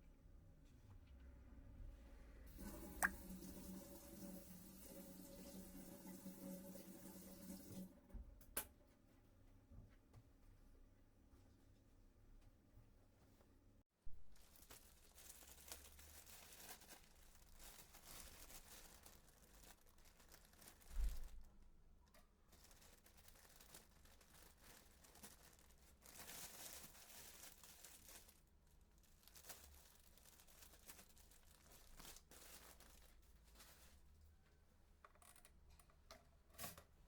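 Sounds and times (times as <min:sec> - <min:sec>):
faint rustling and crinkling: 0:08.8 - 0:37.0.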